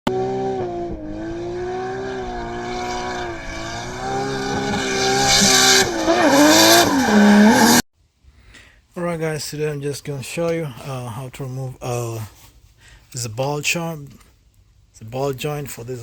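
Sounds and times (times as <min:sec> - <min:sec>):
car engine revving: 0:00.1 - 0:07.8
tyre squeal: 0:01.9 - 0:07.8.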